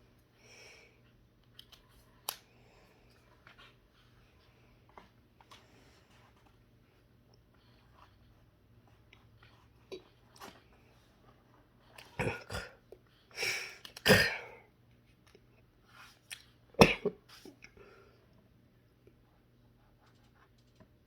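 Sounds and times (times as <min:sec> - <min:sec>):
man sneezing and coughing: 0:14.0 - 0:14.6, 0:16.8 - 0:17.2.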